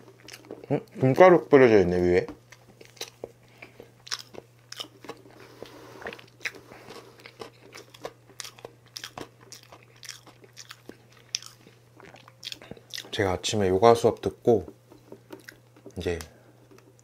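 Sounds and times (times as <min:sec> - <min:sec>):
chewing with wet mouth clicks: 0:00.1 - 0:01.0, 0:02.5 - 0:05.4, 0:06.0 - 0:13.2, 0:15.3 - 0:17.0.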